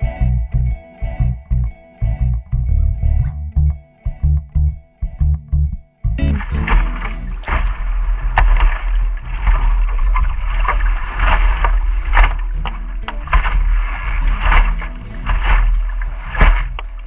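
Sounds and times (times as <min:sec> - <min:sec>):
water rushing along hull: 0:06.3 - 0:17.0
wind buffeting microphone: 0:06.3 - 0:17.0.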